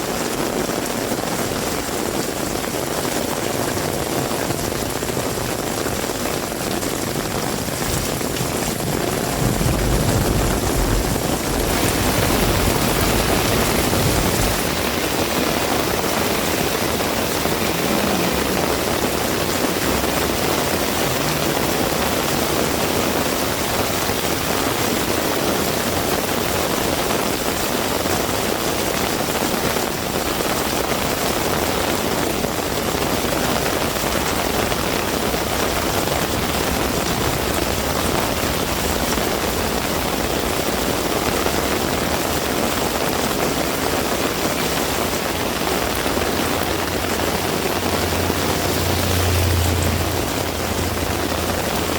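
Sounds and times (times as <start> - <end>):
heavy rain falling: 0.0 - 51.9
low rumble: 8.7 - 26.1.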